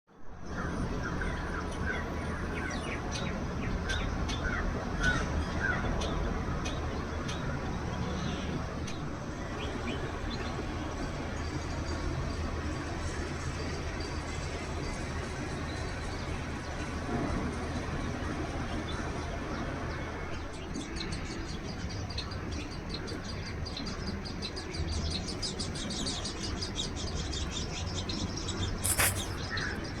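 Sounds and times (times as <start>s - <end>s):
birds chirping: 20.7s - 30.0s.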